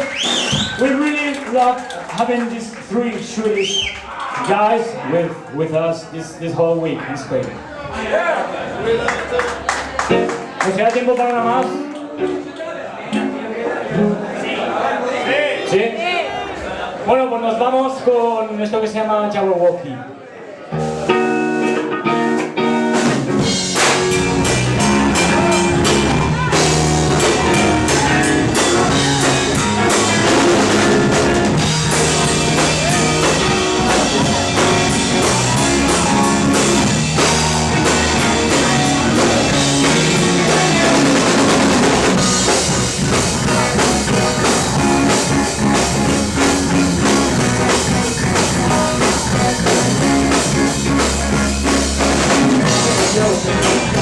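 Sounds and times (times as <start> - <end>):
rock band playing live: 9.7 - 12.4, 20.7 - 54.0.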